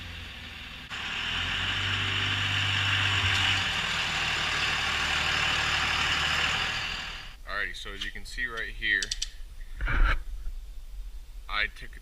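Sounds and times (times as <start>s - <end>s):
diesel engine running: 0.0s - 7.4s.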